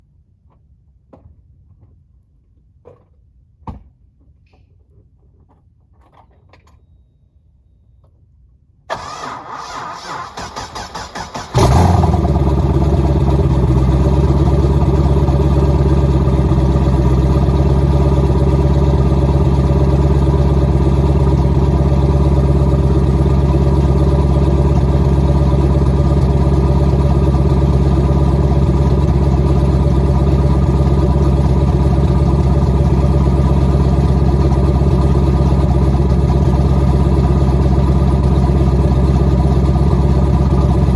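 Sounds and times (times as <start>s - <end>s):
starter motor cranking: 8.9s - 12.5s
engine idling with cam chop: 8.9s - 40.9s.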